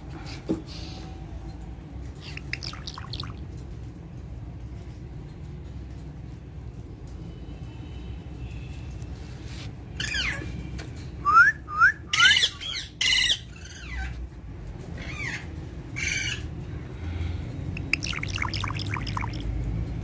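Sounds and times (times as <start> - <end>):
parrot squawking and calling: 2.2 - 3.4, 10.0 - 10.4, 12.1 - 14.2, 15.0 - 16.5, 17.8 - 19.5.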